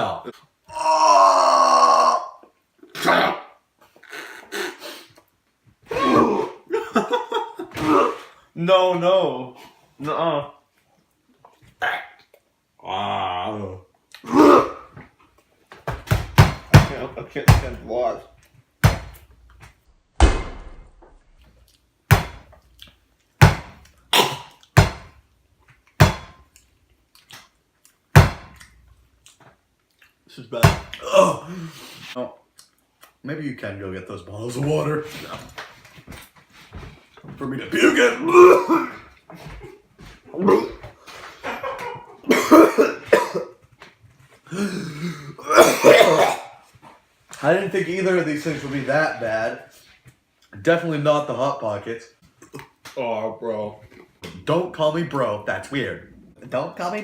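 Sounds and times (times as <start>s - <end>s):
person clearing throat: 5.9s - 6.7s, 7.7s - 8.4s, 14.2s - 14.9s, 24.1s - 24.6s, 31.0s - 31.7s, 37.7s - 39.1s, 40.3s - 40.9s, 42.3s - 43.6s, 44.5s - 46.6s
loud sharp bangs: 20.1s - 21.4s
person coughing: 24.1s - 24.6s, 37.7s - 39.1s, 40.4s - 40.8s, 42.3s - 43.6s, 44.5s - 46.6s.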